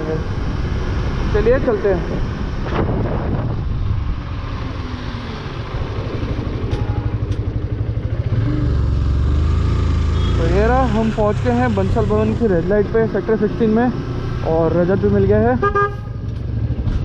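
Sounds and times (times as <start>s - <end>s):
motorcycle engine running: 5.2s - 15.2s.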